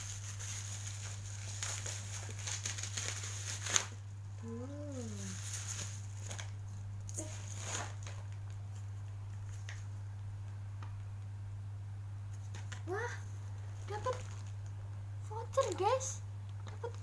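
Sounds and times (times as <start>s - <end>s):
plastic packaging crackling: 0.0s - 9.9s, 12.5s - 14.8s
steady low hum: 0.0s - 17.0s.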